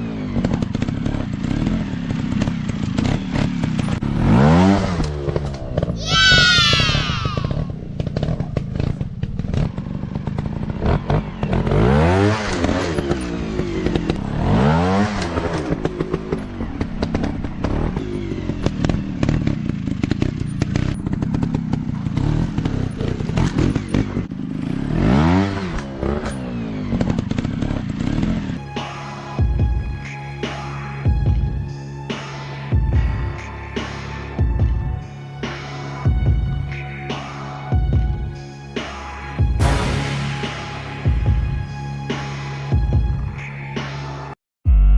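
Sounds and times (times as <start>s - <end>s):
dirt bike engine revving: 0.0s - 28.6s.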